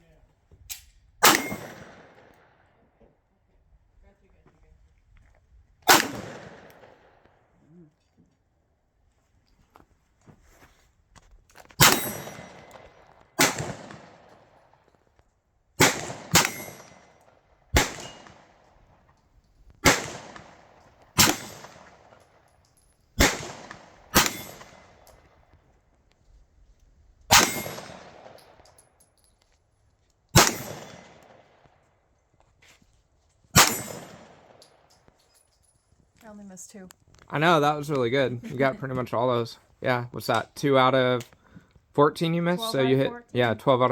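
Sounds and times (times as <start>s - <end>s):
pistol shots: 1.2s - 2.3s, 5.9s - 7.0s, 11.8s - 14.4s, 15.8s - 17.2s, 17.8s - 18.6s, 19.8s - 22.2s, 23.2s - 25.2s, 27.3s - 28.6s, 30.4s - 31.5s, 33.6s - 34.7s.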